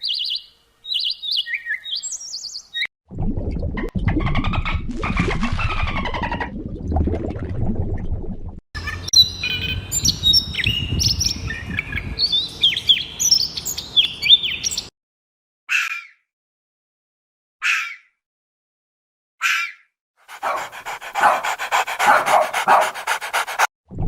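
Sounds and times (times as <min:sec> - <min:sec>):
small birds chirping: 0:00.0 - 0:02.9, 0:08.8 - 0:14.9, 0:20.3 - 0:23.6.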